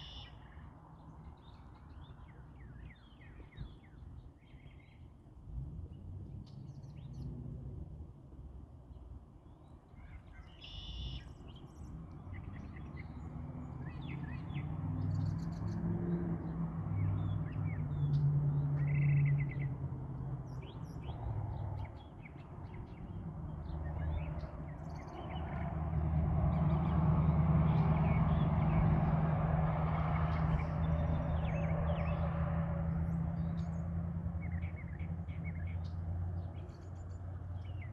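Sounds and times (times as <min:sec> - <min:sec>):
songbirds chirping and trilling: 0:00.0 - 0:05.2, 0:09.4 - 0:37.9.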